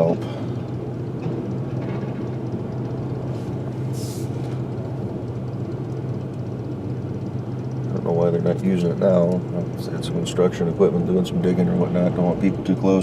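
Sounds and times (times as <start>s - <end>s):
car engine and road noise: 0.0s - 13.0s
short hiss: 3.9s - 4.4s.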